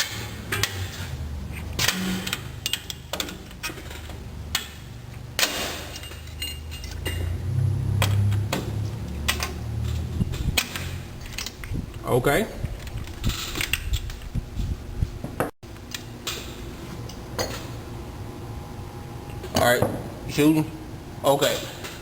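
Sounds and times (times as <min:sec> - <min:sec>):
low steady hum: 0:00.0 - 0:22.0
metal tool clinking on brake springs: 0:05.4 - 0:07.4.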